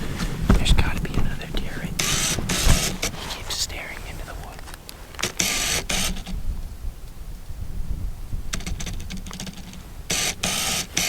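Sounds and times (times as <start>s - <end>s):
low rumble of handling noise: 0.0s - 5.4s
person whispering: 0.5s - 2.1s, 3.0s - 4.8s.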